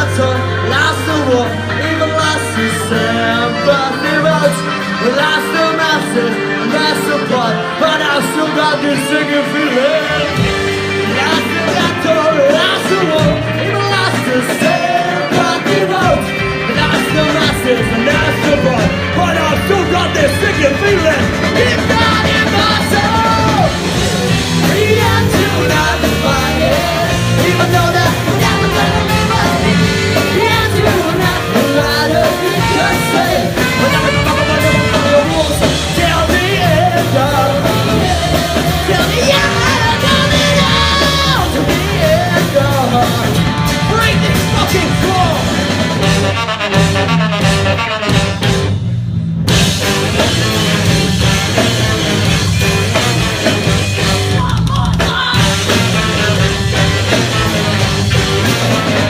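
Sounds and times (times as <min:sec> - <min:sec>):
live rock band with singer: 0:00.0 - 0:59.0.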